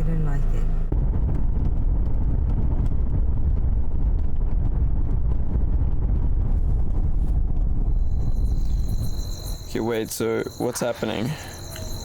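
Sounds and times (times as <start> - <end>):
vehicle rumble: 0.0 - 12.0
wind buffeting microphone: 0.8 - 12.0.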